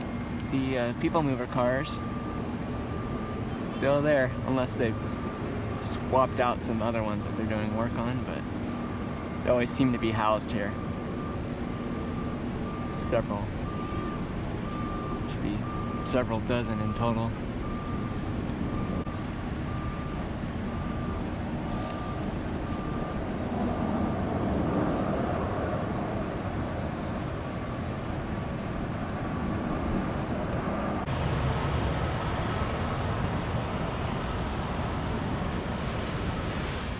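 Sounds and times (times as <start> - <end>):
electronic reversing beep: 0.0 - 23.2
traffic noise: 0.0 - 36.9.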